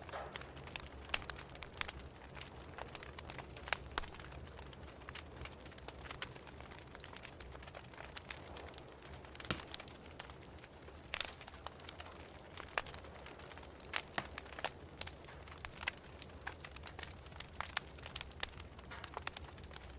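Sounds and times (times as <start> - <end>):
fire crackling and popping: 0.0 - 19.9.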